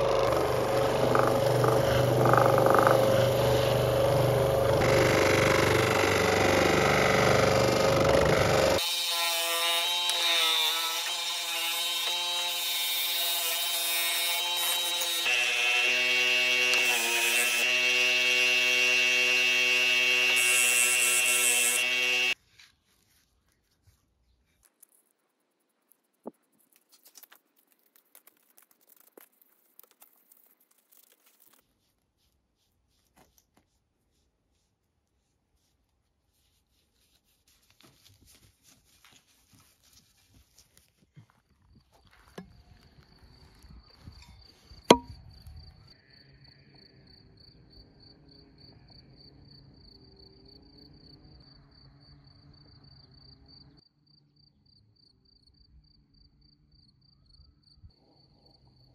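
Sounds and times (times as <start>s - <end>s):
power tool motor humming: 0.0s - 22.4s.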